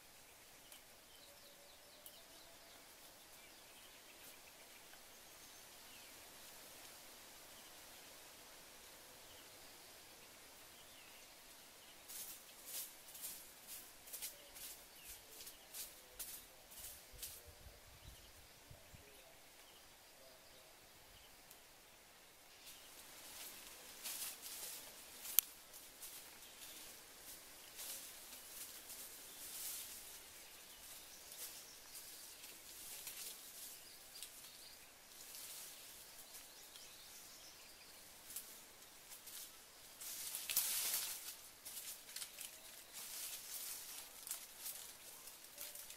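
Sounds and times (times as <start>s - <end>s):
faint bird chirps: 0.0s - 6.3s, 8.9s - 38.6s
outdoor background hiss: 0.0s - 45.9s
rustling and scraping in leaf litter: 11.8s - 17.5s, 22.5s - 45.9s.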